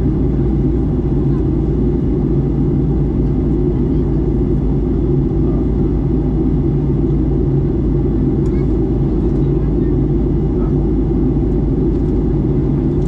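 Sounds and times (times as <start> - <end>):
airplane cabin rumble: 0.0 - 13.0
constant low hum: 0.0 - 13.0.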